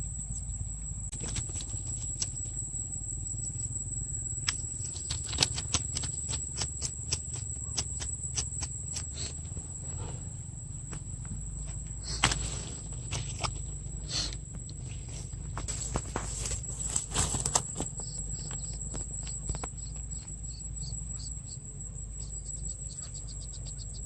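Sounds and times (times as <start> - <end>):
low outdoor rumble: 0.0 - 24.0
clicks and rustles: 1.1 - 2.7, 4.4 - 9.6, 10.9 - 20.5
high-pitched insect drone: 15.9 - 24.0.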